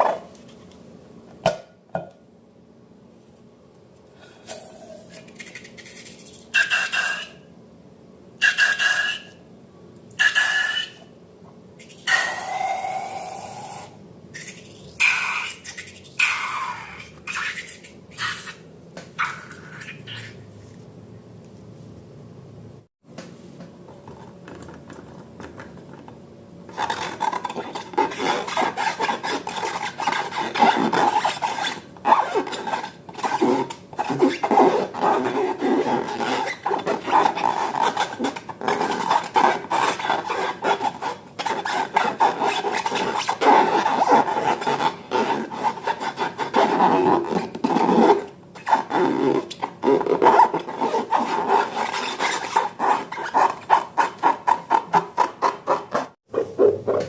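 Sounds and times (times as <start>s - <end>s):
balloons being rubbed: 26.7s - 57.0s.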